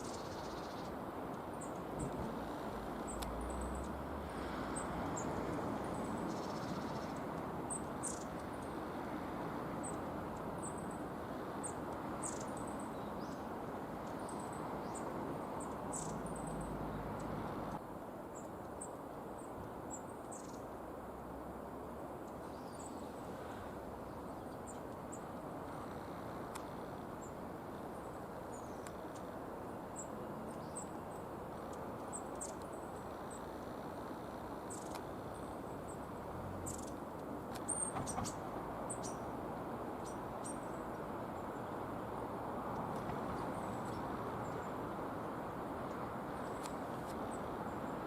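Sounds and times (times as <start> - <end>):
songbirds high call notes: 0.0 - 8.8, 9.8 - 17.8, 24.1 - 41.8
steady low background noise: 0.0 - 48.0.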